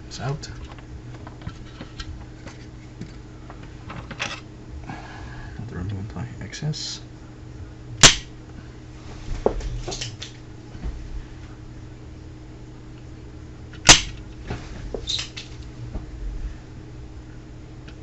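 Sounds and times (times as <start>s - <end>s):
low electrical hum: 0.0s - 18.0s
desoldering pump plunger snap: 8.0s - 8.3s, 13.8s - 14.2s.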